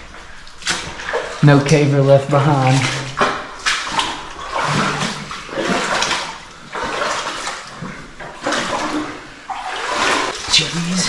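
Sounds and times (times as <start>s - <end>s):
water sloshing around wading person: 0.0s - 11.0s.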